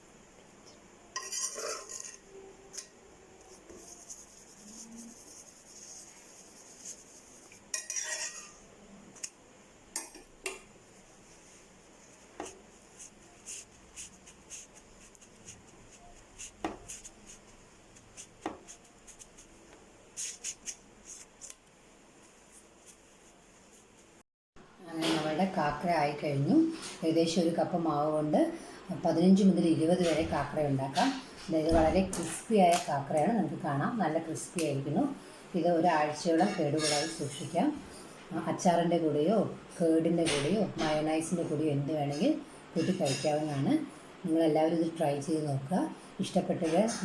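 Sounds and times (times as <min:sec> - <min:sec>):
kitchen utensils clinking and scraping: 0:01.1 - 0:03.0, 0:06.9 - 0:09.3.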